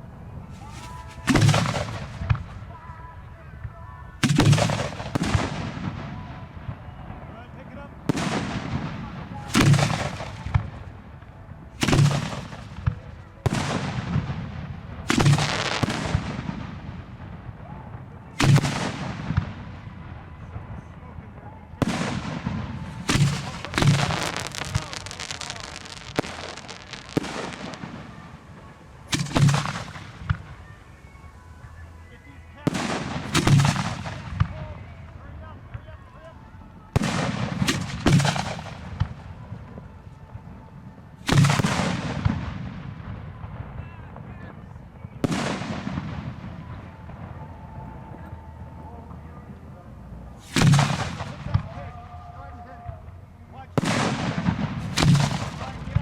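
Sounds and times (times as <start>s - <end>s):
fireworks crackling: 0.0s - 56.0s
light firework pops: 0.6s - 2.6s, 18.4s - 19.7s, 21.8s - 30.7s, 50.4s - 51.8s, 53.8s - 56.0s.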